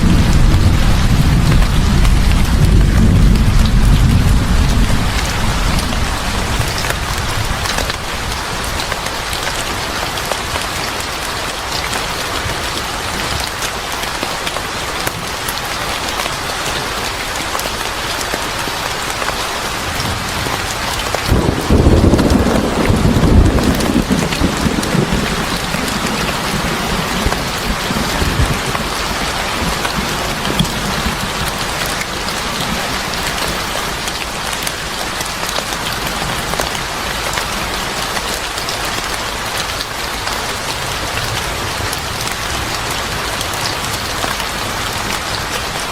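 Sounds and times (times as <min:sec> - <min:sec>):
low roll of thunder: 0:00.0 - 0:08.0, 0:21.3 - 0:31.7
heavy rain falling: 0:00.0 - 0:45.9.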